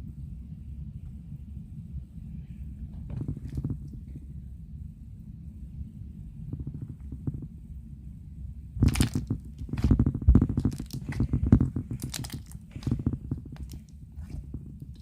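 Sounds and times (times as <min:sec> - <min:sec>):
slime squished by hand: 0:08.8 - 0:15.0.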